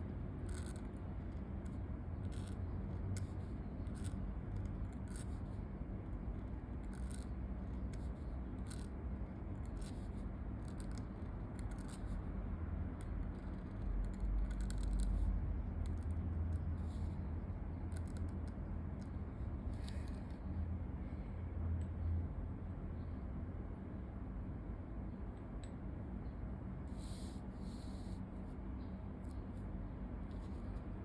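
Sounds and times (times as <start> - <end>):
low background rumble: 0.0 - 31.0
pen scratching on paper: 0.3 - 12.2.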